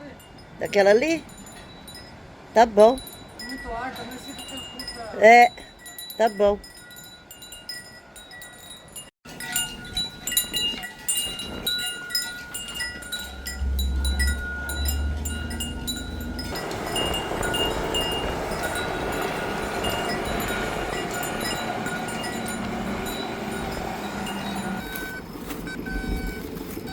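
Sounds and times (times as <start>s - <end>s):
small metal bells tinkling: 0.0s - 26.9s
low rumble: 12.7s - 25.2s
steady rushing noise: 13.0s - 26.8s.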